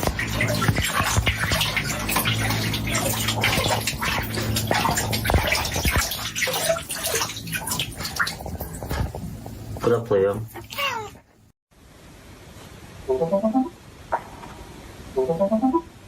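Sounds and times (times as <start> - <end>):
water splashing and dripping: 0.0 - 11.1.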